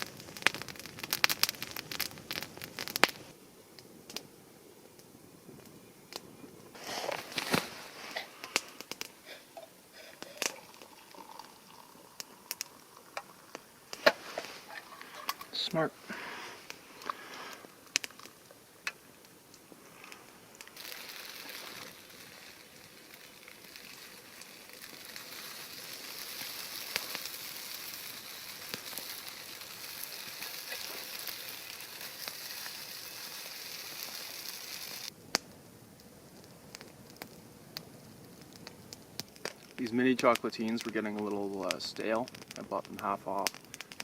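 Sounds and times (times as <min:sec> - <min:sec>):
pastries sizzling in a pan: 0:00.0 - 0:03.3, 0:06.8 - 0:35.4.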